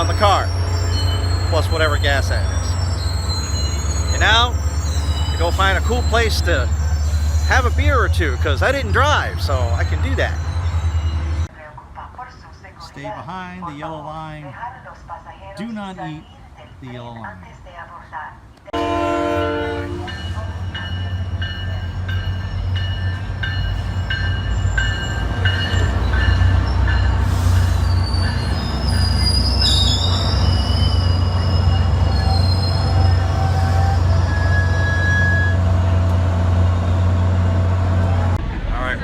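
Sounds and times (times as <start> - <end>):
brake and wheel squeals: 0.0 - 11.5, 18.8 - 38.4
train bell ringing: 0.0 - 11.5, 18.8 - 35.6
diesel locomotive drone: 0.0 - 13.5, 17.4 - 39.0.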